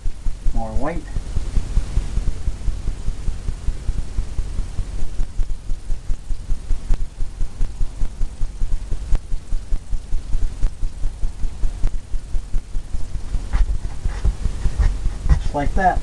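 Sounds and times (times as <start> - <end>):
brush tapping on canvas: 13.2 - 15.7.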